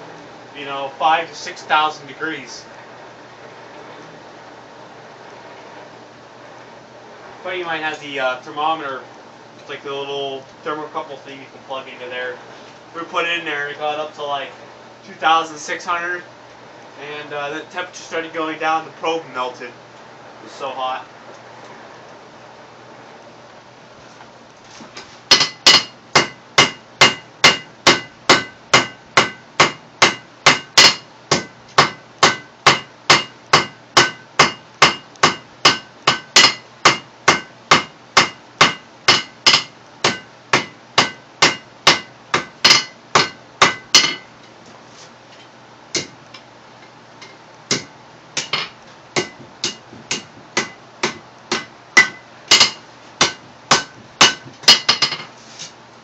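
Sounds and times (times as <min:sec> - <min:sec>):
hammer ringing on anvil: 0:25.3 - 0:44.3, 0:48.4 - 0:55.2.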